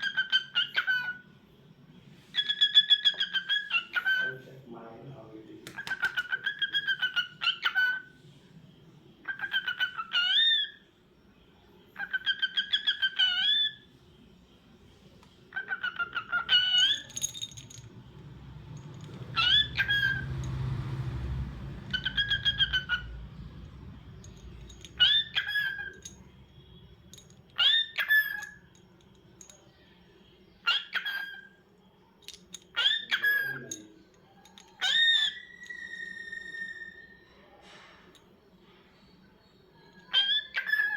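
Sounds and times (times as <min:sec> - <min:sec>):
cockatiel whistling calls: 0:02.3 - 0:04.4, 0:19.3 - 0:20.3, 0:21.9 - 0:23.2, 0:24.9 - 0:26.0, 0:34.8 - 0:37.4, 0:40.0 - 0:40.9.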